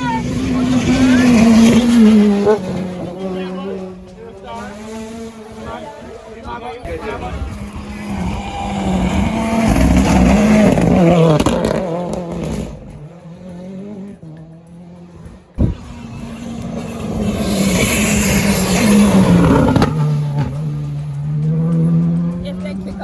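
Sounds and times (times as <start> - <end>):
car tyres on road: 0.0 - 23.0
rally car engine passing: 0.0 - 23.0.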